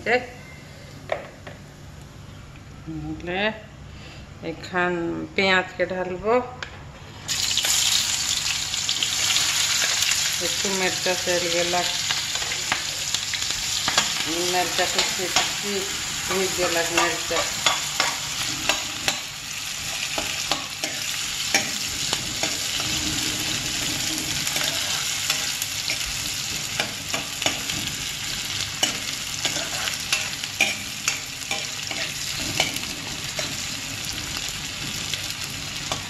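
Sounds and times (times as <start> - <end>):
onions sizzling in oil: 7.3 - 36.0
spoon scraping a pan: 19.9 - 27.9, 28.8 - 33.8.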